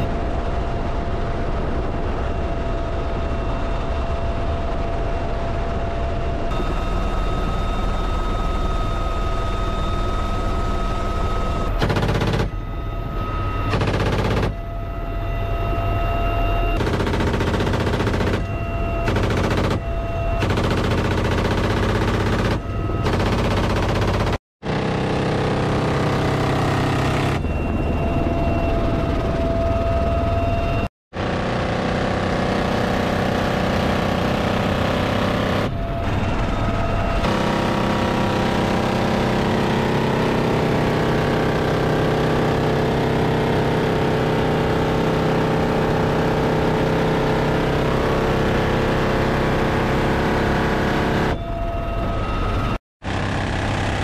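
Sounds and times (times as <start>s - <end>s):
helicopter rotor and turbine: 0.0s - 54.0s
minigun firing: 11.6s - 12.7s, 13.5s - 14.6s, 16.7s - 27.5s
machine gun firing: 11.8s - 12.7s, 13.6s - 14.6s, 16.8s - 27.3s.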